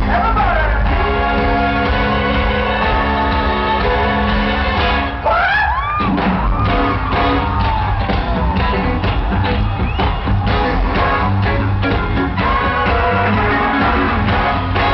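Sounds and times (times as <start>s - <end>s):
live funk band: 0.0s - 14.9s
crowd whooping: 5.0s - 14.9s.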